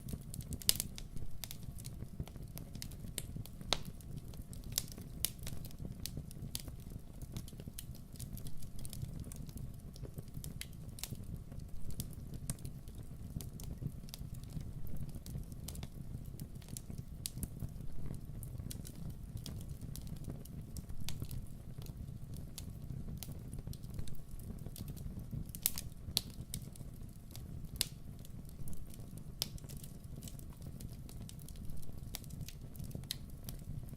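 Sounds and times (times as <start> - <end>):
campfire crackling and popping: 0.0 - 33.9
low rumble of flames: 0.0 - 33.9.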